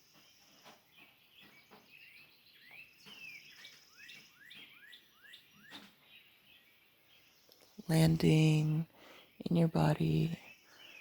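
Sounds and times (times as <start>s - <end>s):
birds chirping softly: 0.0s - 11.0s.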